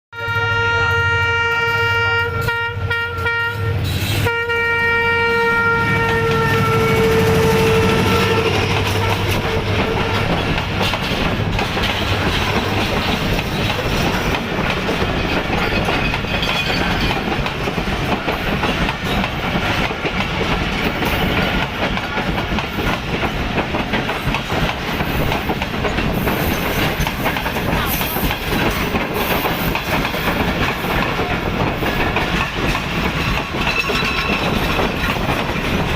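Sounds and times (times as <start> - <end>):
train horn blowing: 0.1 - 10.5
train wheels clattering on rails: 5.8 - 35.9.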